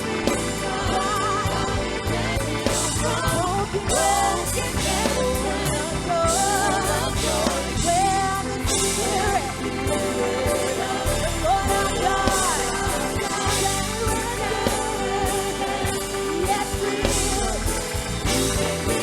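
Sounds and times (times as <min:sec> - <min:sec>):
band with drums bass and keyboard: 0:00.0 - 0:19.0
gospel singing: 0:00.0 - 0:19.0.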